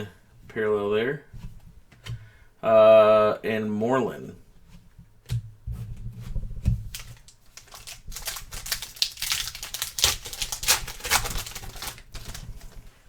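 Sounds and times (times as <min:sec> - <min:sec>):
trading cards clicking and crinkling: 0:06.7 - 0:12.9.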